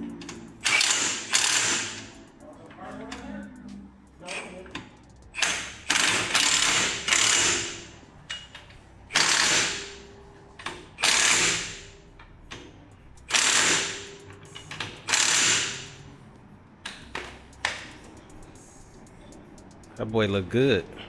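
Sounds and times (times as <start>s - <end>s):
impact wrench bursts: 0.2s - 2.3s, 5.3s - 8.5s, 9.1s - 10.0s, 11.0s - 12.0s, 13.2s - 16.1s.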